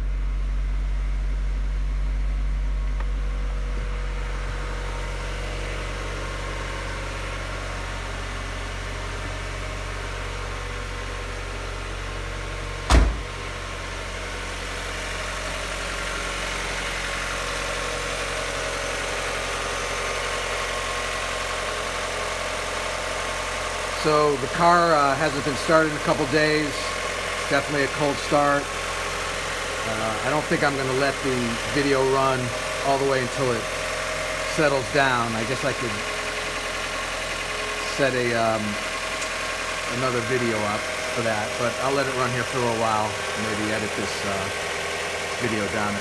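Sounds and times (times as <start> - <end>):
car engine idling: 0.0 - 46.0
loud thump: 12.8 - 13.5.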